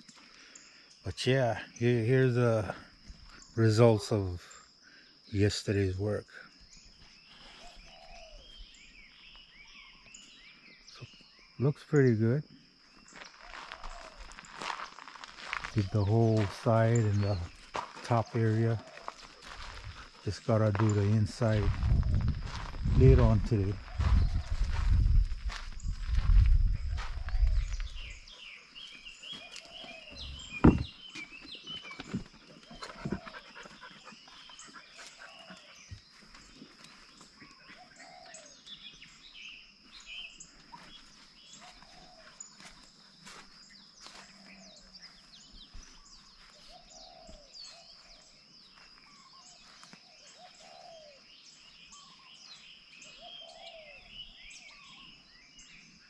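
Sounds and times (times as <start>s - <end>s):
birds chirping and calling: 0.0s - 56.0s
low bird call: 15.7s - 36.8s.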